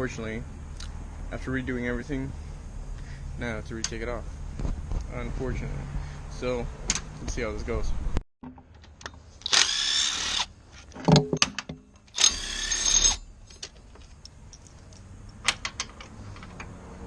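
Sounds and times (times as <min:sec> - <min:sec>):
power tool spinning up: 0:09.4 - 0:10.5, 0:12.1 - 0:13.2.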